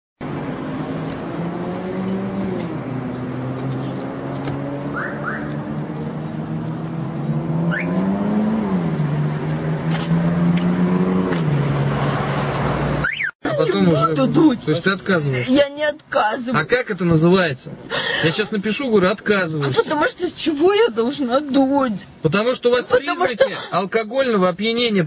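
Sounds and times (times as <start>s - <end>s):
car engine running: 0.3s - 12.1s.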